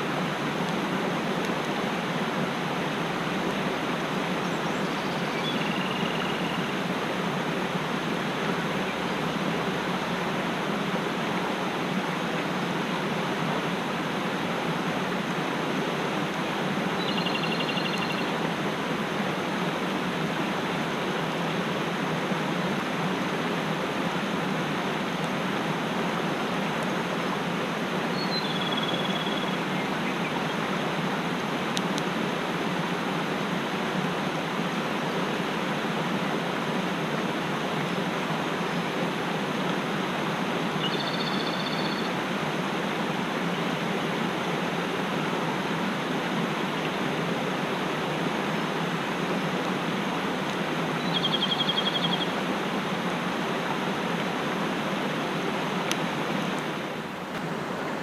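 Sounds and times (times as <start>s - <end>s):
mountain stream rushing: 0.0s - 58.0s
small bird calling: 4.4s - 6.8s, 17.0s - 18.4s, 28.1s - 30.4s, 40.8s - 42.2s, 51.0s - 52.4s.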